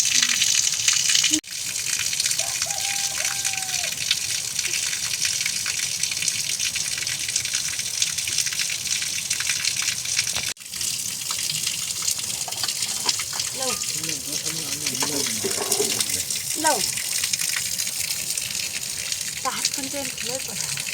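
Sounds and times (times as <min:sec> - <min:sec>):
running water: 0:00.0 - 0:20.9
heavy rain: 0:13.4 - 0:17.7.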